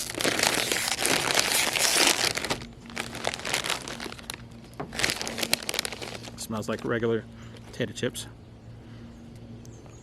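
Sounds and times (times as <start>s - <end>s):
chip bag crinkling: 0.0s - 6.5s.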